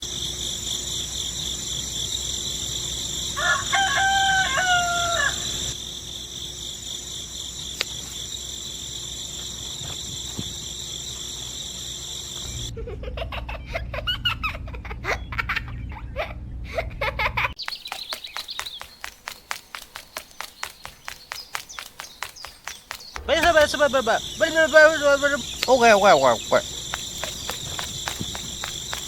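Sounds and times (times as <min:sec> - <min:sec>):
rooster crowing: 0:03.4 - 0:05.8.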